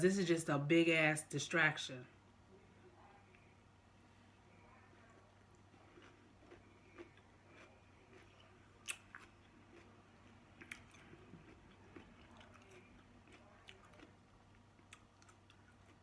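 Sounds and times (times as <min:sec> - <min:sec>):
chewing and biting: 0:04.9 - 0:16.0.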